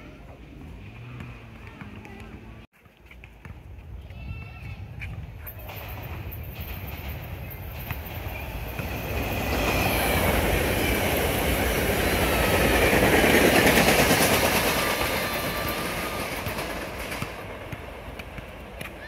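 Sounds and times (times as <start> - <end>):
train wheels clattering over rail joints: 5.5 - 19.0.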